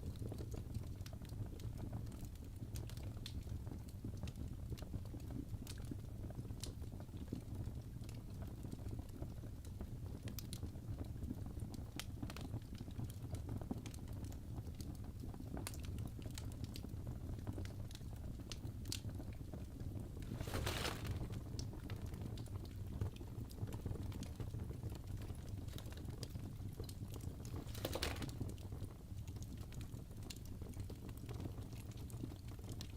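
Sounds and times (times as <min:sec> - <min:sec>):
wood fire crackling: 0:09.2 - 0:32.9
fire pops and snaps: 0:11.8 - 0:32.9.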